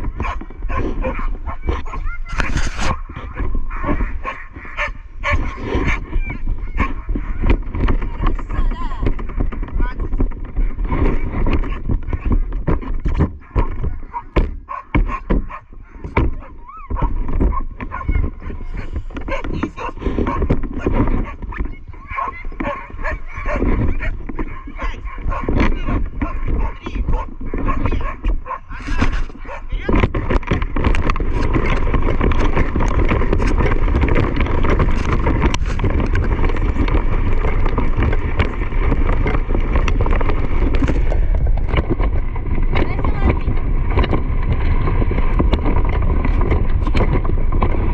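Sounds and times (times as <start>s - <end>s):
knocks and rattles: 0.0s - 47.9s
wind buffeting microphone: 0.0s - 47.9s
dogs whining and yipping: 0.2s - 7.1s.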